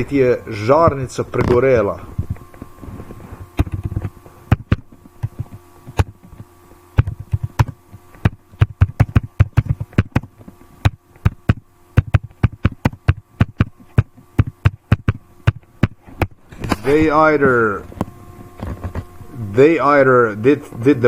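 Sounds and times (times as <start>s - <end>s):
faint steady hum: 0.0s - 21.0s
sharp clicks and taps: 3.6s - 16.3s.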